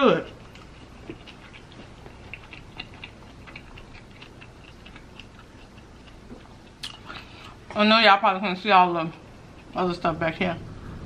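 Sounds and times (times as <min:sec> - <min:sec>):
person chewing food: 0:00.0 - 0:07.8, 0:09.0 - 0:09.8.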